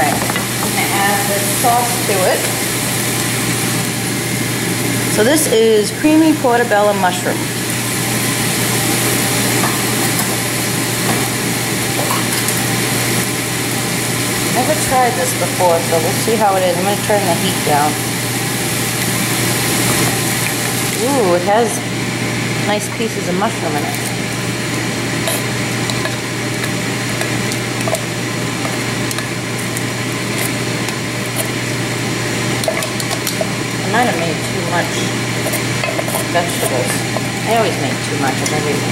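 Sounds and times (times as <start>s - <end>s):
food sizzling in a frying pan: 0.0s - 38.9s
steady low hum: 0.0s - 38.9s
utensil clicking against pan: 32.6s - 33.5s.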